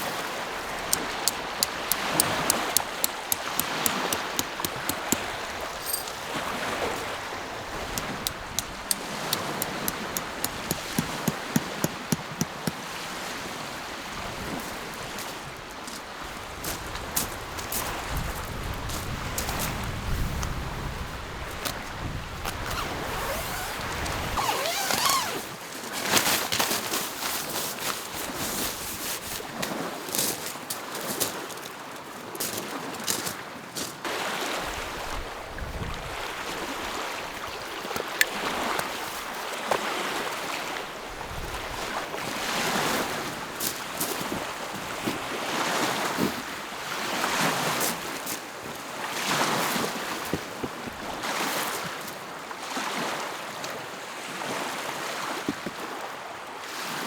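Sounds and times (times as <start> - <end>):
sharp clicks: 0.9 - 6.2, 8.0 - 12.8
lake waves lapping on shore: 34.1 - 53.4.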